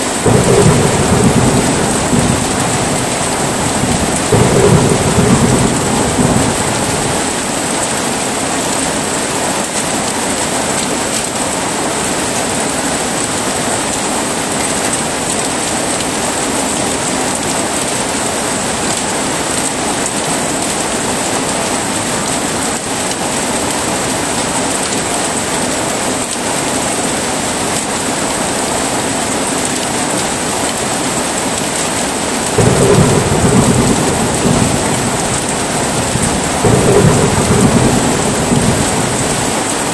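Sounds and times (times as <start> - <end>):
thunder rumbling: 0.0 - 7.9, 32.4 - 39.9
heavy rain falling: 0.0 - 39.9.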